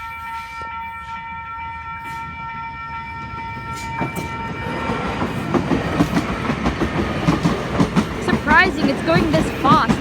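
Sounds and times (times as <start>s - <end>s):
train horn: 0.0s - 5.4s
train rumble and wheel clatter: 0.0s - 10.0s.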